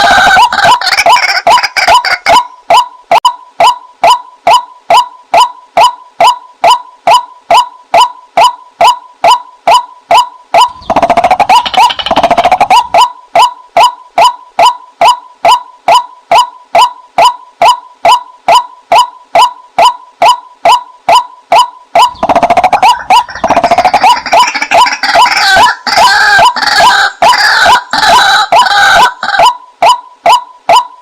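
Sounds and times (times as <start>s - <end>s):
waterhen calling: 0.0s - 2.5s, 10.6s - 13.5s, 22.0s - 30.8s
harsh rapid chattering: 10.7s - 12.9s, 22.0s - 25.4s.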